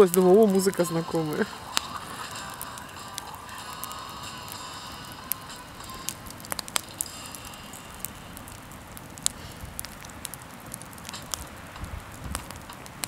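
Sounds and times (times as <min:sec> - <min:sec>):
burning wood popping: 0:00.0 - 0:13.0
campfire crackling: 0:00.0 - 0:13.0.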